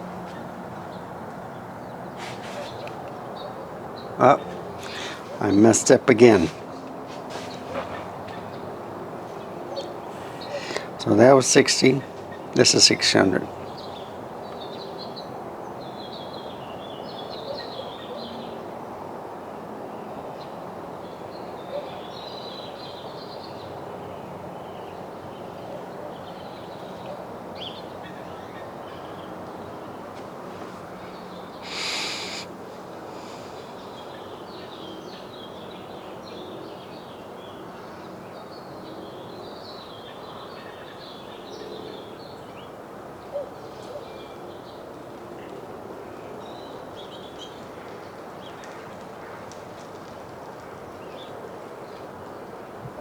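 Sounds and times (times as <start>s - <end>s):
sparrows chirping: 0.0s - 18.8s, 20.3s - 45.6s, 46.2s - 48.7s
steady outdoor hum: 0.0s - 53.0s
brief rushing hiss: 2.2s - 2.8s, 31.6s - 32.5s.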